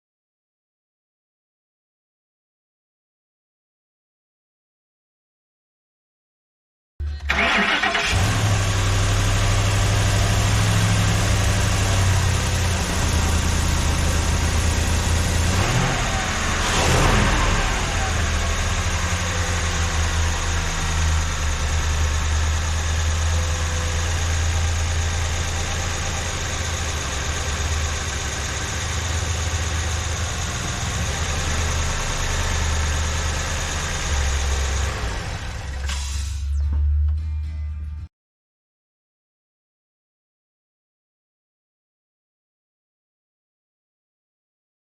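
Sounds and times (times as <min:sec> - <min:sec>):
truck engine idling: 0:07.2 - 0:37.3.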